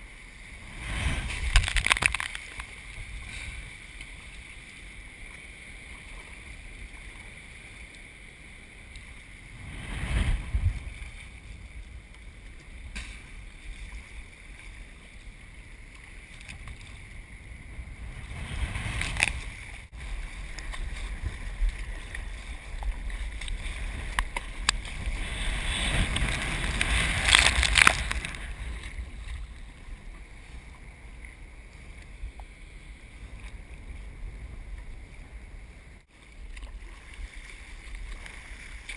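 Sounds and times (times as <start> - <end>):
ocean surf: 0.0 - 38.9
wind noise on microphone: 0.6 - 4.0, 9.4 - 14.3, 16.3 - 36.1
breaking whitewater whooshes: 9.5 - 11.1, 18.0 - 28.8.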